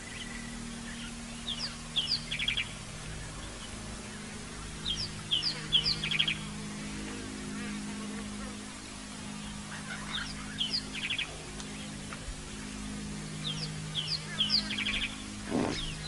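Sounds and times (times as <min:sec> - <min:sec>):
steady low hum: 0:00.0 - 0:16.0
bird calling with rattle: 0:13.4 - 0:16.0.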